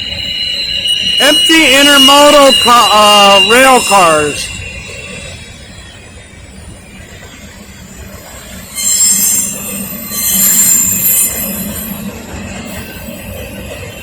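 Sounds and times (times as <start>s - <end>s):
freight train rumbling past: 0.0s - 14.0s
train wheels squealing: 0.0s - 14.0s.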